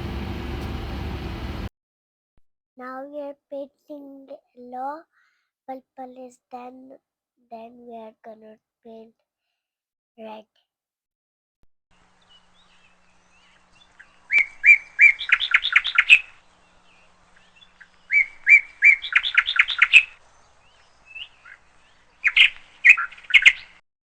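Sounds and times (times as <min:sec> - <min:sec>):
small bird chirping: 0:12.1 - 0:23.8.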